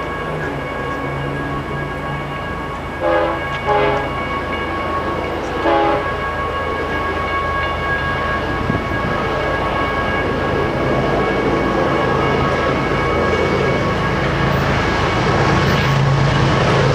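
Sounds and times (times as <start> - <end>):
train rumble: 0.0 - 16.9
locomotive air horn blasts: 3.0 - 4.3, 5.6 - 6.2.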